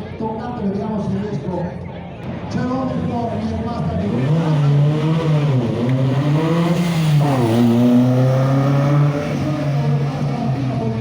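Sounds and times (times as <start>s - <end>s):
car engine revving: 3.3s - 11.0s.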